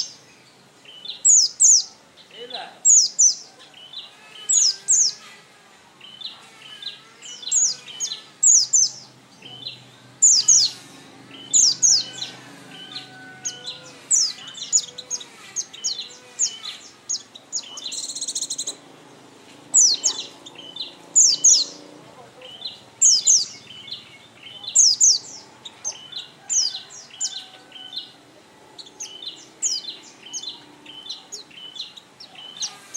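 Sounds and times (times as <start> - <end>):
buzzy bird trill: 1.0 - 5.4, 6.0 - 18.9, 19.7 - 21.8, 22.4 - 28.2
bird chirping downward sweeps: 7.2 - 25.6.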